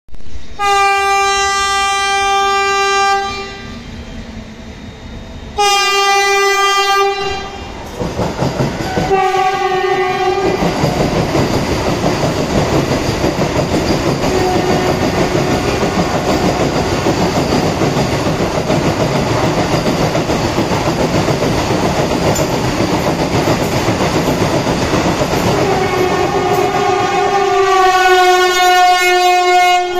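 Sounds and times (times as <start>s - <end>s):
train passing with wheel and air rush: 0.1s - 29.9s
train horn blasts: 0.5s - 4.0s, 5.6s - 7.8s, 8.9s - 10.6s, 14.3s - 16.3s, 25.5s - 29.9s.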